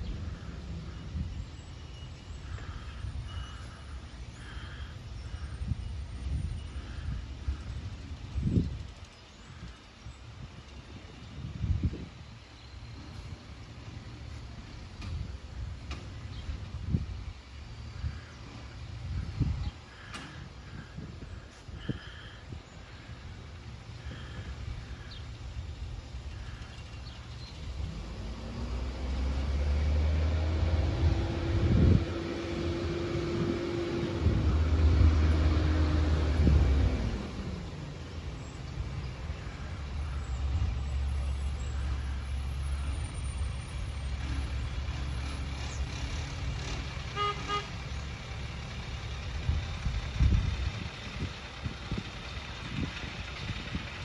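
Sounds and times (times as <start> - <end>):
diesel engine revving: 22.9 - 54.0.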